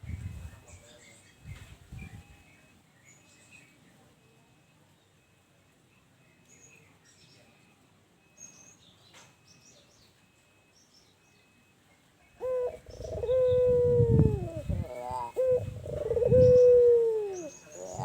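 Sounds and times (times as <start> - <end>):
distant small birds chirping: 5.9 - 18.0.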